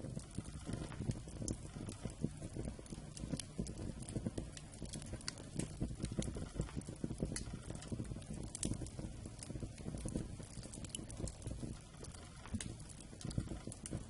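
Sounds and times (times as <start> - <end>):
campfire crackling and popping: 0.0 - 14.0
low rumble of flames: 0.0 - 14.0.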